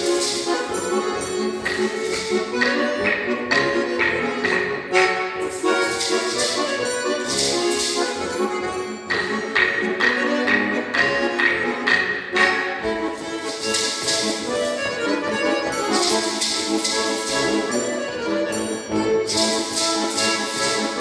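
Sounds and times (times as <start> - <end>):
folk dance melody: 0.0 - 21.0
hand percussion: 0.0 - 21.0
splashy jingling hits: 5.5 - 9.8, 15.7 - 21.0.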